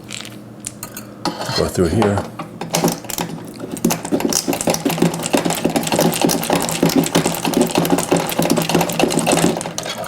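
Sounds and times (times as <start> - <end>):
hand tool rapid clicking: 2.7 - 9.8.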